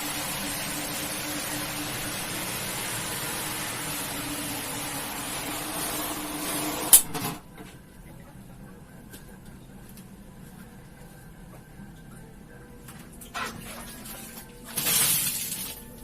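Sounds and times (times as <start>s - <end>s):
machine hissing and humming: 0.0s - 7.0s.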